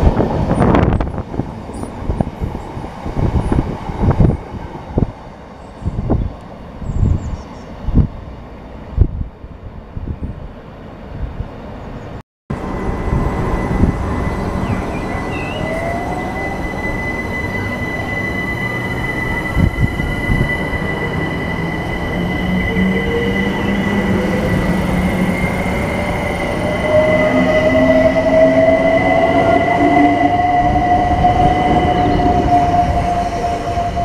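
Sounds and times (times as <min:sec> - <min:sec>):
train wheel and rail rumble: 0:00.0 - 0:34.0
traction motor whine rising: 0:12.5 - 0:34.0
steady high whistle: 0:12.6 - 0:34.0.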